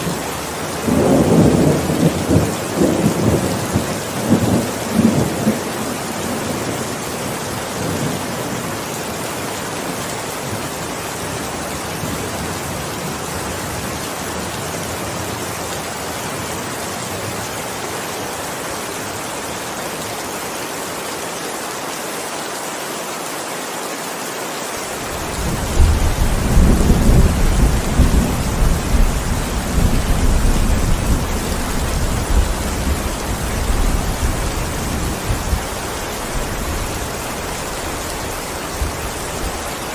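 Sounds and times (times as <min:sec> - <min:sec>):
heavy rain hissing: 0:00.0 - 0:39.9
rolling thunder rumble: 0:25.1 - 0:37.2.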